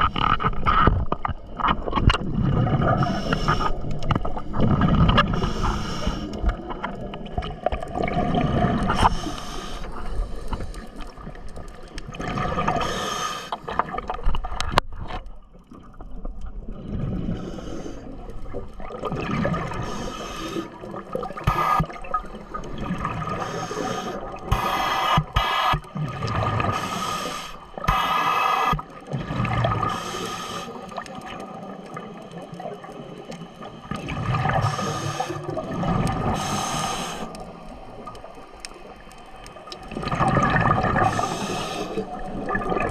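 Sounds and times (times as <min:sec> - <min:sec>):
water bubbling and gurgling: 0:00.0 - 0:42.9.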